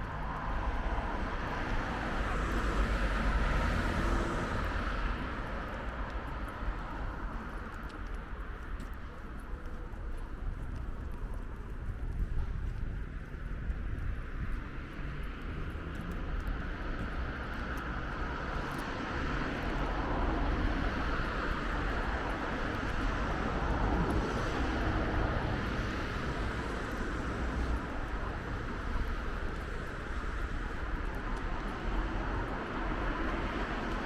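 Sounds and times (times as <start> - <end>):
passing traffic engine noise: 0.1 - 6.4.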